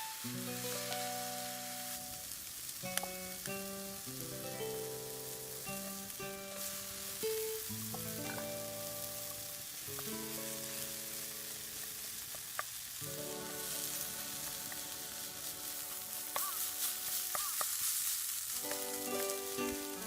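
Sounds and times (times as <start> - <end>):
background music of held notes: 0.0 - 12.4, 13.0 - 17.4, 18.5 - 20.0
food sizzling in a frying pan: 0.0 - 20.0.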